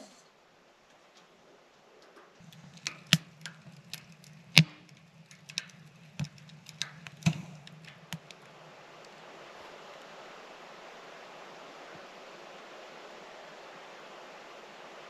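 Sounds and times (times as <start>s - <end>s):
wood fire crackling and popping: 2.0s - 9.2s
low steady hum: 2.4s - 15.0s.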